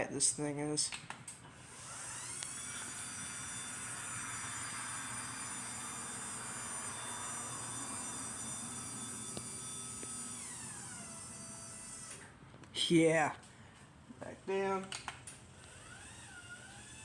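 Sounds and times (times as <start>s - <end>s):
garage door opener whirring: 1.1s - 12.5s, 14.9s - 17.0s.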